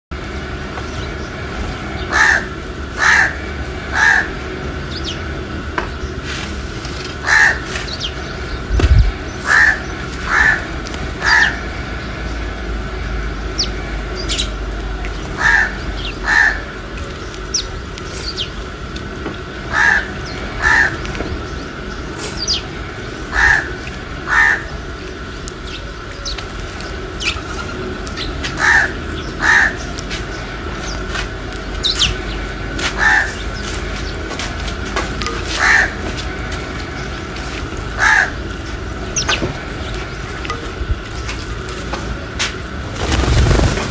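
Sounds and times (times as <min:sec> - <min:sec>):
low background hum: 0:00.1 - 0:43.9
small birds chirping: 0:00.6 - 0:43.9
crow cawing: 0:02.0 - 0:04.7, 0:07.2 - 0:08.1, 0:09.3 - 0:11.9, 0:15.2 - 0:16.9, 0:19.6 - 0:21.1, 0:23.2 - 0:24.9, 0:28.4 - 0:30.0, 0:32.8 - 0:33.4, 0:35.4 - 0:36.6, 0:37.9 - 0:38.6.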